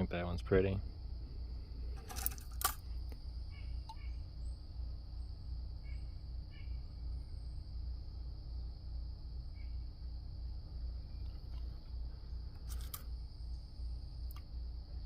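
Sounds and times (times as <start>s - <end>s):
insects chirping: 0.0s - 15.0s
steady low hum: 0.0s - 15.0s.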